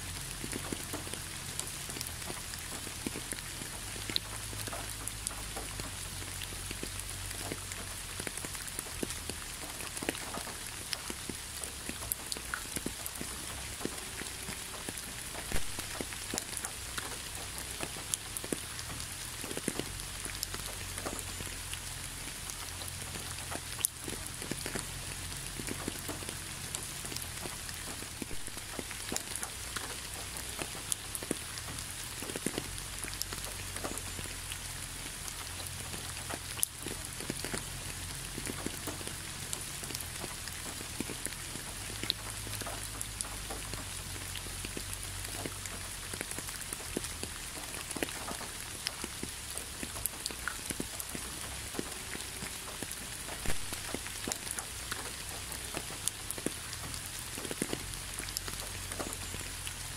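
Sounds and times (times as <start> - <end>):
rain hiss: 0.0 - 59.9
raindrops tapping: 0.0 - 59.9.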